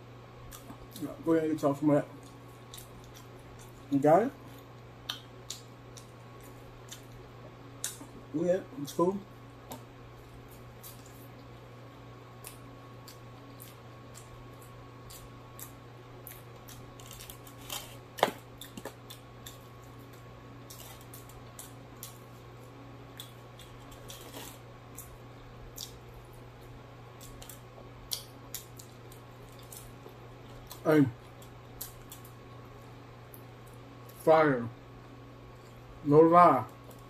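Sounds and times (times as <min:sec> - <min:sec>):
steady low hum: 0:00.0 - 0:37.0
wet chewing and lip smacking: 0:02.2 - 0:03.9, 0:04.5 - 0:07.2, 0:12.4 - 0:16.9, 0:23.1 - 0:32.4.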